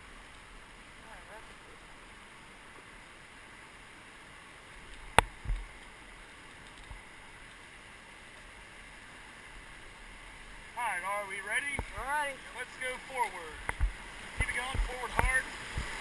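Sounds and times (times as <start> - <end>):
river water rushing: 0.0 - 16.0
dull thump: 13.7 - 15.9.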